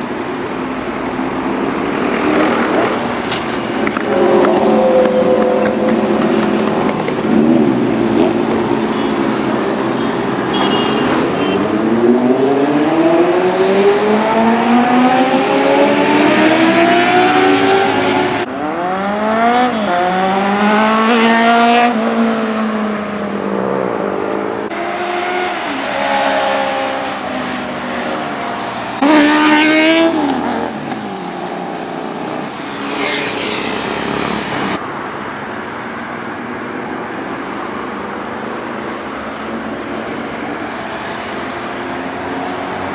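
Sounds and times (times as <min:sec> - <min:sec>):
motorbikes revving past: 0:01.7 - 0:34.8.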